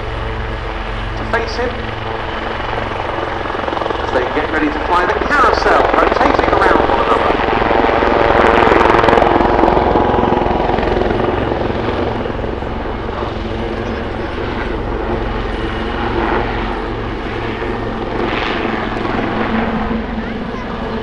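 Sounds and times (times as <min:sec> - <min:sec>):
helicopter rotor chop: 0:00.0 - 0:21.0
turbine whine: 0:00.0 - 0:21.0.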